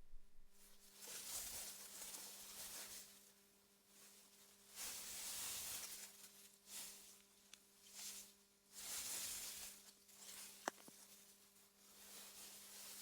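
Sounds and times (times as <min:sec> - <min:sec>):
faint steady hum: 0:00.0 - 0:00.9.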